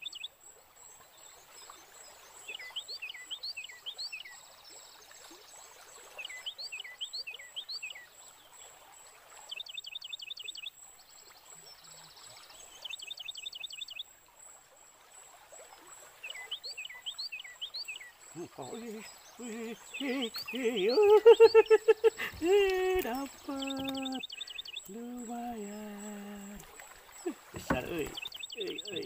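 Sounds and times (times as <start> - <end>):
birds chirping: 16.2 - 29.0
buzzy bird trill: 18.4 - 26.6, 27.2 - 29.0.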